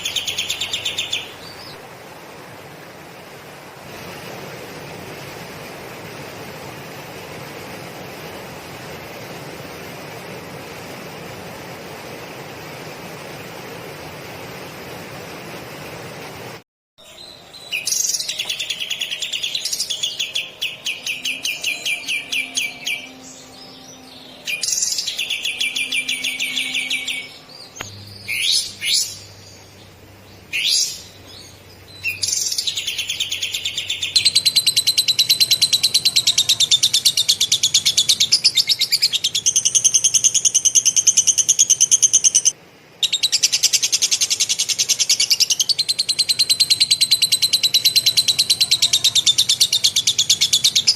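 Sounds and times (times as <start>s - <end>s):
songbird trilling: 30.5s - 50.9s.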